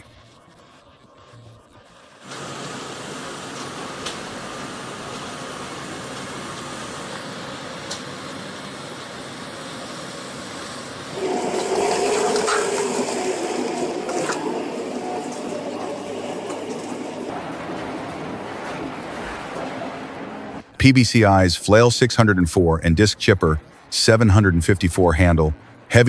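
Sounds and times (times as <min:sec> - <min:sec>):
heavy machinery running: 0:10.9 - 0:26.0
low machine whine: 0:10.9 - 0:26.0
rushing sound: 0:11.2 - 0:26.0.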